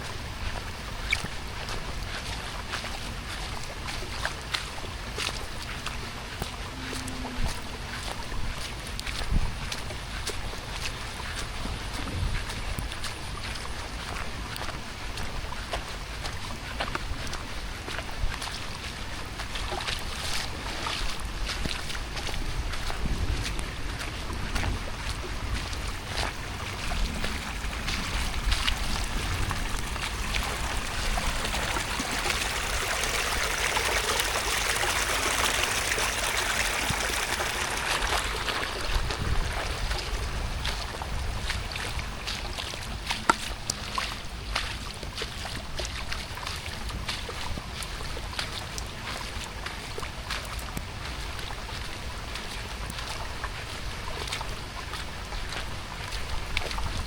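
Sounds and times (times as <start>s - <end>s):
steady rain falling: 20.2s - 43.2s
low rumble: 22.0s - 33.7s.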